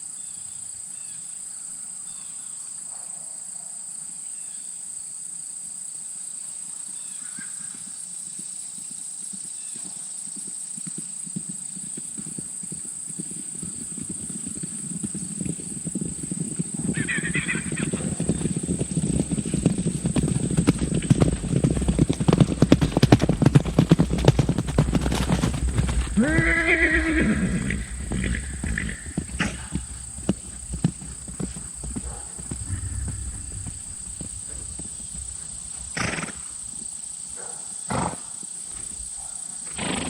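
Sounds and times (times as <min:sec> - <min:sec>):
horses' hooves beating on ground: 0:07.6 - 0:37.2
horse neighing: 0:16.8 - 0:36.7.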